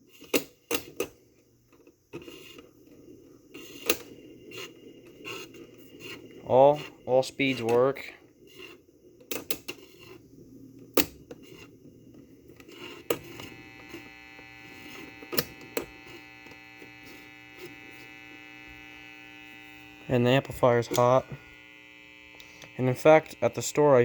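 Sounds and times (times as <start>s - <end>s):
amplifier mains hum: 2.6s - 24.0s
record player clicks and knocks: 12.6s - 18.1s.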